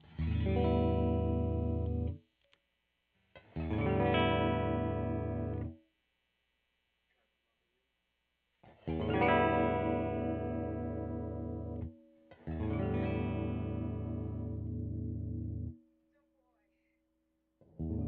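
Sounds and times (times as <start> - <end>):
electric guitar chord ringing: 3.7 - 5.7, 9.0 - 15.8.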